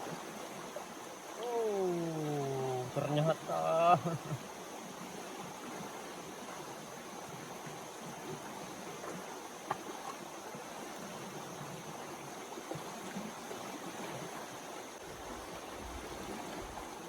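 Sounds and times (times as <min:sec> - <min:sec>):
river rushing: 0:00.0 - 0:06.8.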